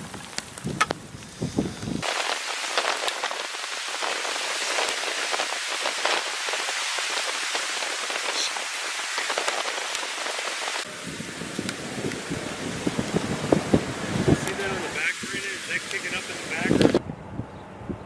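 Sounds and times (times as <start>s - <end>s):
rain pattering on a surface: 0.0s - 17.0s.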